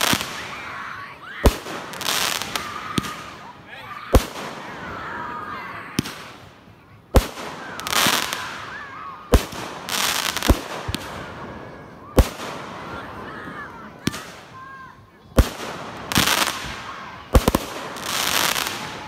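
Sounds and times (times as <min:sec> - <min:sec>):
fireworks booming: 0:00.0 - 0:00.8, 0:01.4 - 0:14.6, 0:15.3 - 0:19.0
fireworks hissing crackle: 0:00.0 - 0:19.0.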